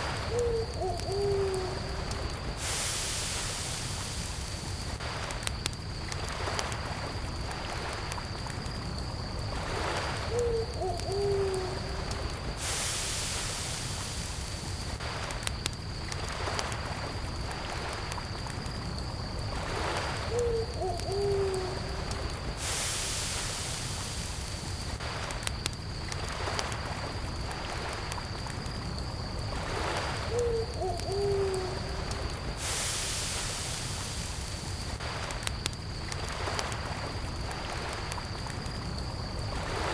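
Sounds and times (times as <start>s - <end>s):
campfire crackling: 0.0s - 39.9s
crickets chirring: 0.0s - 39.9s
low hooting call: 0.3s - 2.0s, 10.3s - 12.0s, 20.3s - 22.0s, 30.3s - 32.0s.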